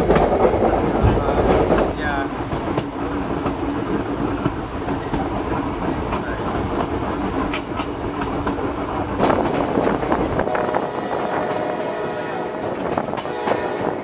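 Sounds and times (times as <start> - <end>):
sharp track clicks: 0.0 - 10.5
train wheels rumbling on rail: 0.0 - 14.0.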